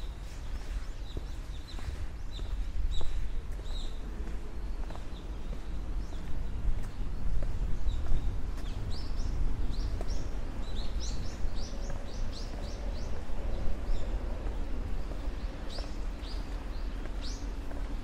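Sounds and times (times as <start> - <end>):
low outdoor rumble: 0.0 - 18.0
small birds chirping: 0.0 - 18.0.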